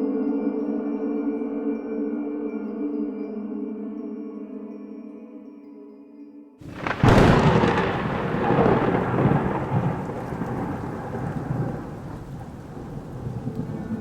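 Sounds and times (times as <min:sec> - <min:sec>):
steady rain: 0:06.6 - 0:14.0
thunderclap with rolling rumble: 0:06.7 - 0:14.0.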